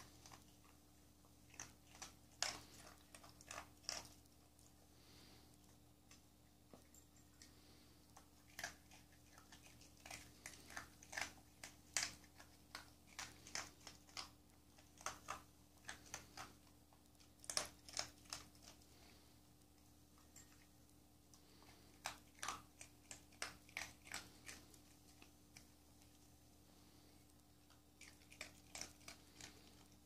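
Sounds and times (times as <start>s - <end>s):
dog crunching dry kibble: 0.0s - 5.3s, 6.8s - 19.3s, 21.4s - 26.2s, 27.6s - 30.0s.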